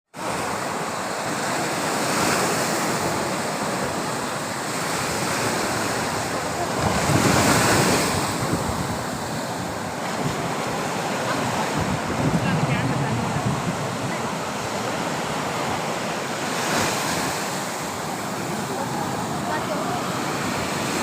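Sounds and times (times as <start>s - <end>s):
waves breaking on beach: 0.1s - 21.0s
wind on microphone: 5.2s - 15.9s.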